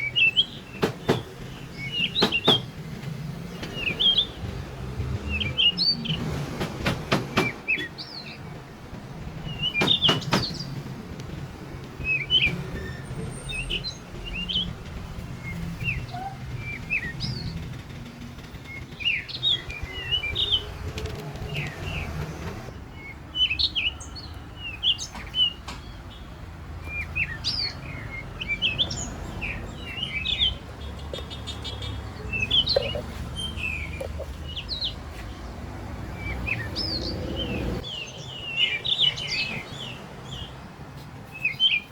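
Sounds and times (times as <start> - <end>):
small birds chirping: 0.0 - 6.4, 7.4 - 41.9
sharp knocks: 0.8 - 2.8, 6.5 - 7.9, 9.7 - 10.9.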